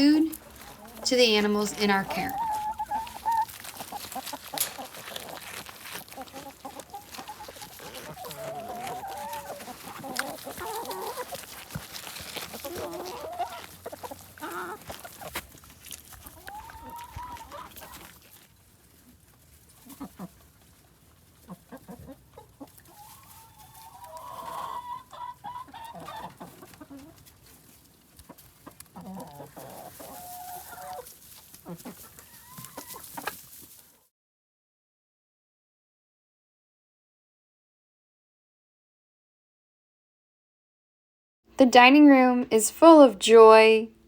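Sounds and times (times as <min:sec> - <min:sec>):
chickens clucking: 0:00.0 - 0:33.9
long drawn-out chicken call: 0:16.4 - 0:18.0, 0:21.4 - 0:27.1, 0:29.0 - 0:33.4.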